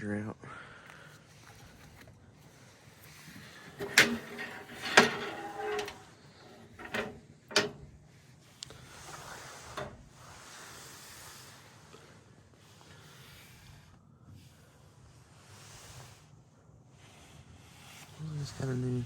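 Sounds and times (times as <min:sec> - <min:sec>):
metal tools clanking and rattling: 0:03.6 - 0:08.0.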